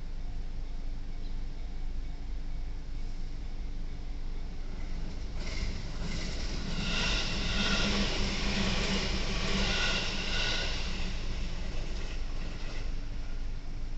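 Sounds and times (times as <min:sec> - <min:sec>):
train rumbling past: 0:02.5 - 0:13.9
high ringing sound: 0:03.4 - 0:12.9.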